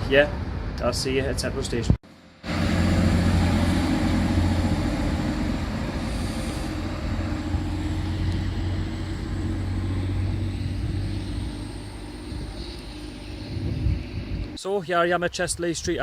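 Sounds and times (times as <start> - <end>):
train humming and rumbling: 2.1 - 14.6.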